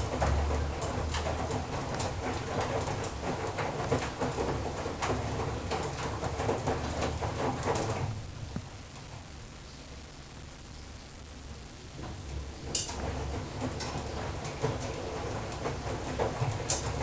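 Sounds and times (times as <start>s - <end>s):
load knocking inside washing machine: 0.0s - 8.7s
washing machine drum humming: 0.0s - 17.0s.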